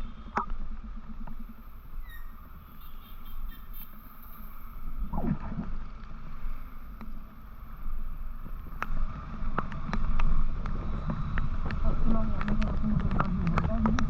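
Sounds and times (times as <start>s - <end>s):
road rumble: 3.5s - 14.0s
wind rushing over microphone: 7.5s - 14.0s.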